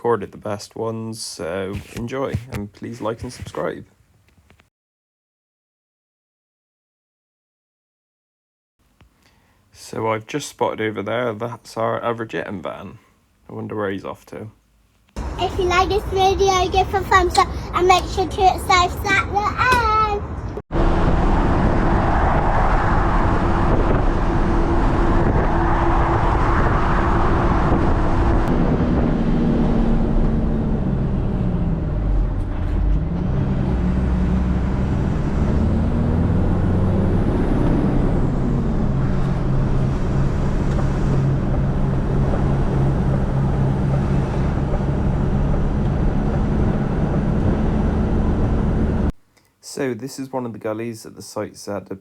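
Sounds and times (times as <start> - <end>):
diesel engine running: 15.2 - 49.1.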